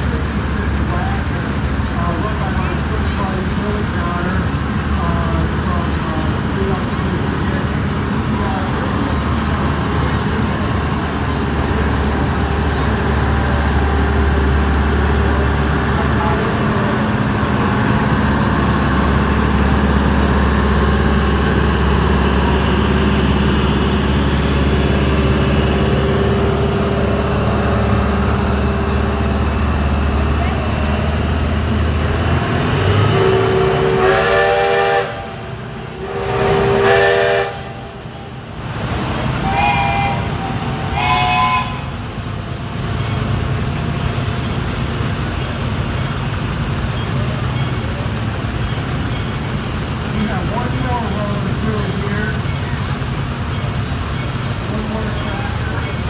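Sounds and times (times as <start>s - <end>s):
tractor engine rumbling: 0.0s - 56.0s
steam whistle blasts: 33.0s - 35.4s, 36.0s - 37.9s, 39.4s - 42.0s.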